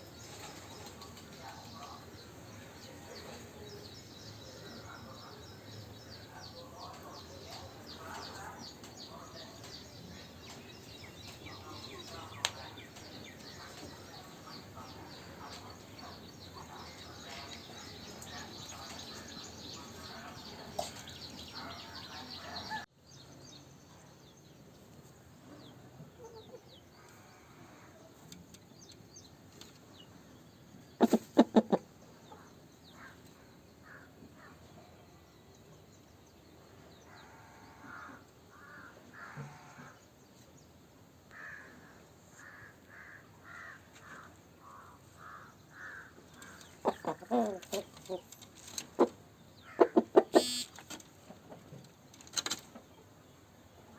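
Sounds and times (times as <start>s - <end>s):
chickens clucking: 0.0s - 22.8s, 26.0s - 27.2s, 30.7s - 33.4s, 46.1s - 53.2s
chickens calling: 0.0s - 22.9s, 30.7s - 34.6s, 43.6s - 51.8s.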